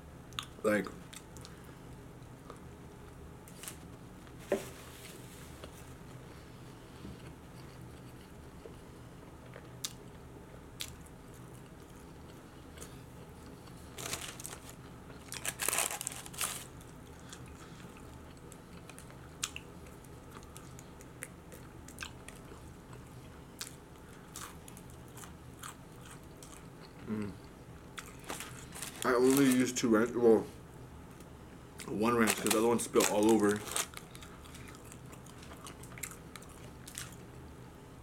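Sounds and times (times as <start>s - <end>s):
chewing crunchy food: 10.8s - 29.6s, 31.8s - 37.4s.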